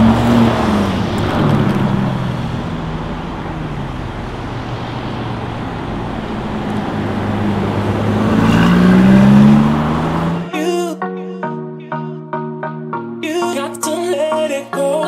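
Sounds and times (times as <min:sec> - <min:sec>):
car engine at low revs: 0:00.0 - 0:10.5
road noise: 0:00.0 - 0:10.6.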